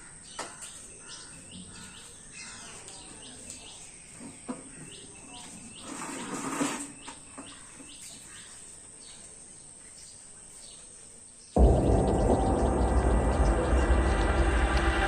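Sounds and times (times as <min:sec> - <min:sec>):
faint outdoor background noise: 0:00.0 - 0:15.0
small birds chirping: 0:00.0 - 0:15.0
brief rushing sound: 0:11.6 - 0:15.0
loud music: 0:11.6 - 0:15.0.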